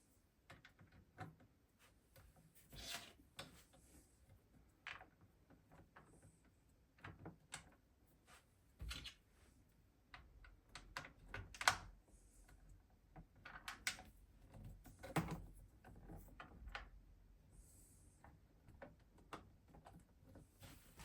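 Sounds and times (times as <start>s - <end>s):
plastic parts clicking and knocking: 10.1s - 12.0s, 13.0s - 17.0s.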